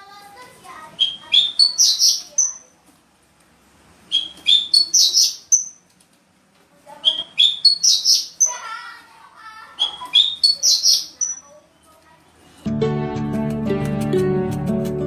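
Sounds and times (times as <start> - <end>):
bird rippling chatter: 0.8 - 2.8, 4.1 - 5.9, 6.9 - 12.1
bird singing sharp chirps: 1.0 - 2.7, 4.1 - 5.8, 7.0 - 8.6, 9.8 - 11.6.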